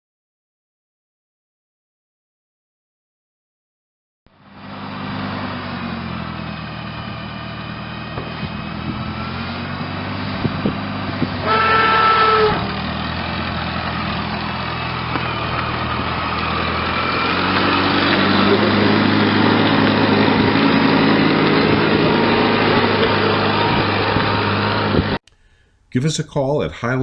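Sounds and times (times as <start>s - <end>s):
engine running: 4.3s - 25.8s
horn: 11.4s - 12.7s.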